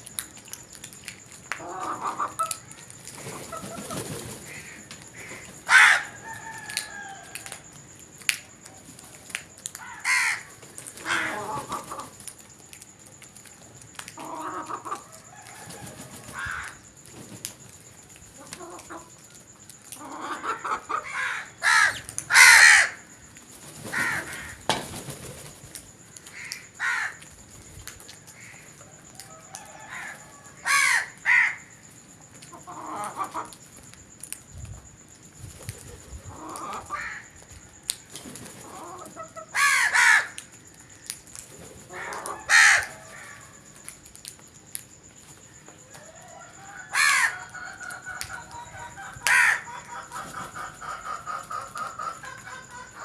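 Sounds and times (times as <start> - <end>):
faint steady high tone: 0.0 - 39.6, 40.4 - 53.0.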